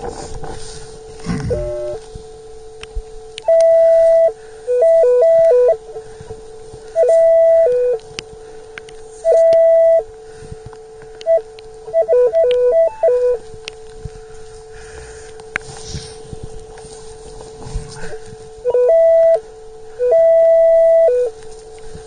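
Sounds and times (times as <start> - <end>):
metal detector tones: 1.3 - 2.1, 3.3 - 6.1, 6.8 - 10.1, 11.1 - 13.8, 17.9 - 21.7.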